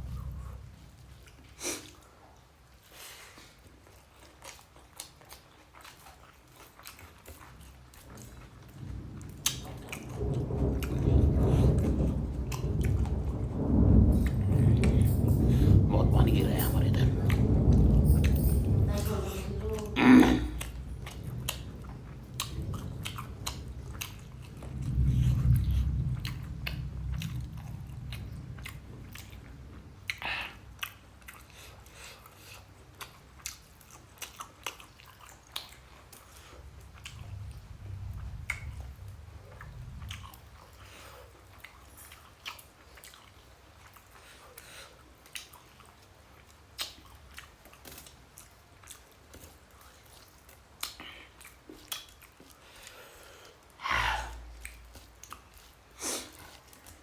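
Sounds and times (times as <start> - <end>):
low rumble: 0.0 - 1.4, 7.9 - 31.7, 36.3 - 41.2, 53.8 - 55.7
person chewing wet mouth clicks: 45.2 - 52.9.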